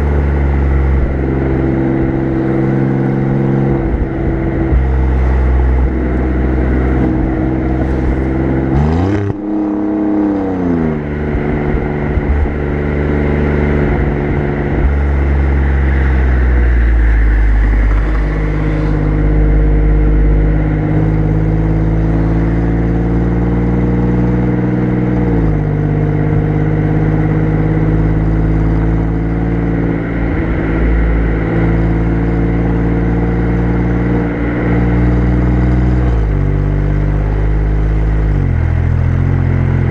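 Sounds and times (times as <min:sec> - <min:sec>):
car exhaust at steady cruise: 0:00.0 - 0:39.9.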